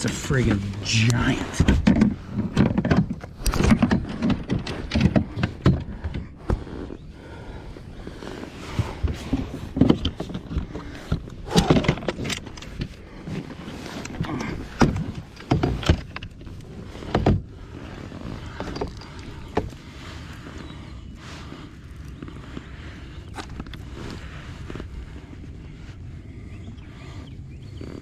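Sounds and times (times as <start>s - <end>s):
thumps and knocks in plastic kayak: 1.5s - 6.7s, 8.8s - 20.4s.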